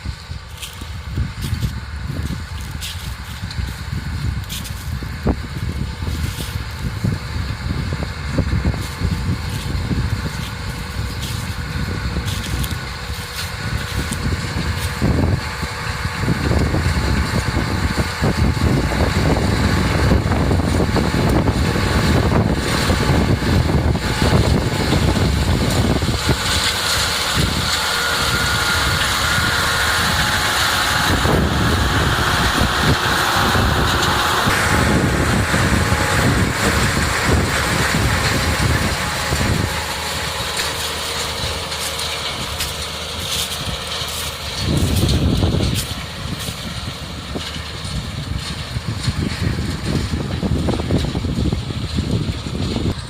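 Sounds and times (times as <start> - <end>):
tractor engine and harvester machinery: 0.0 - 53.0.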